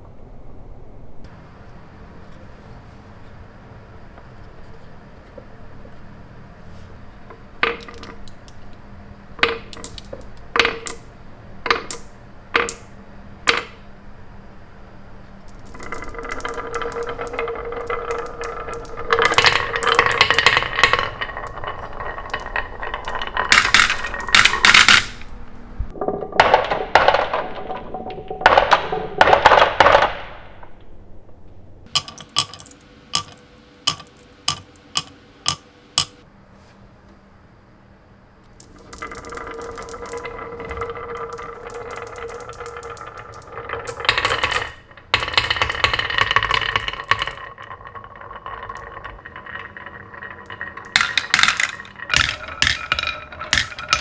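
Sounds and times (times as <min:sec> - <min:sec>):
marble clicks: 0:07.2 - 0:08.8, 0:09.4 - 0:13.8, 0:15.4 - 0:30.2, 0:31.9 - 0:36.2, 0:38.4 - 0:54.0
marbles rolling and rattling: 0:07.2 - 0:13.9, 0:15.4 - 0:30.4, 0:31.8 - 0:36.2, 0:38.5 - 0:54.0.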